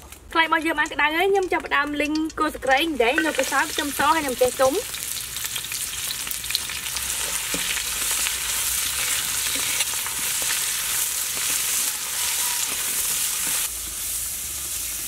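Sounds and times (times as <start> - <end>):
food sizzling in hot oil: 0.6 - 15.0
metal spatula scraping a wok: 5.6 - 15.0.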